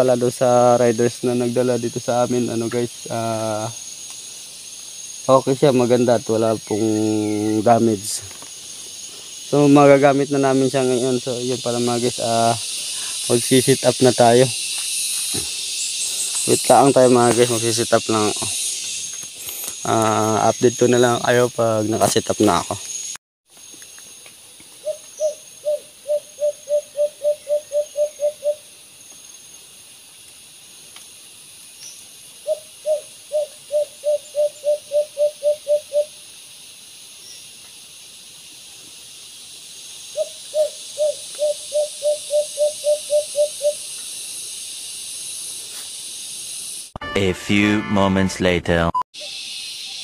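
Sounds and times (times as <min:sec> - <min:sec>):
steady high hiss: 0:00.0 - 0:25.7, 0:35.9 - 0:47.0, 0:49.2 - 0:50.0
dove low hooting: 0:24.8 - 0:28.6, 0:32.4 - 0:36.2, 0:40.1 - 0:43.8.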